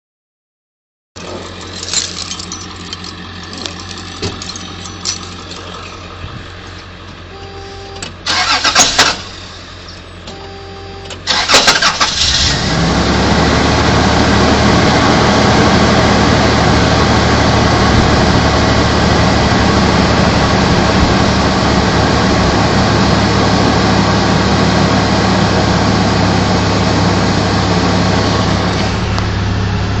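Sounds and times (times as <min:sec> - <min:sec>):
engine cranking: 0:01.2 - 0:06.8, 0:08.0 - 0:09.6, 0:11.1 - 0:13.0
pickup engine running loudly: 0:01.2 - 0:10.2, 0:11.2 - 0:30.0.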